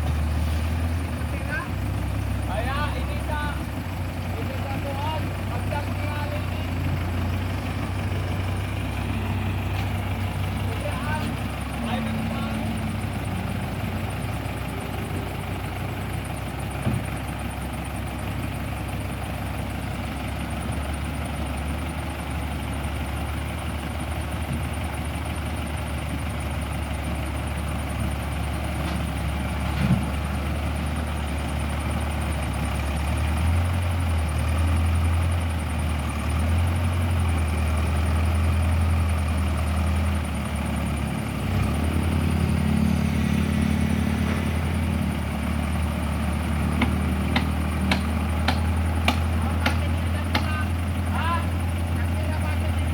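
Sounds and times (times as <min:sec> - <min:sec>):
diesel engine drone: 0:00.0 - 0:52.9.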